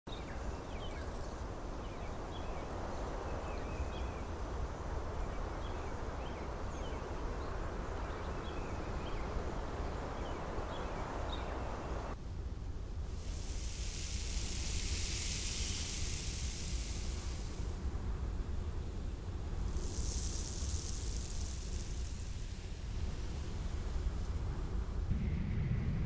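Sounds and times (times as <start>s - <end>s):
birds chirping: 0.1s - 12.2s
steady rushing noise: 0.5s - 26.0s.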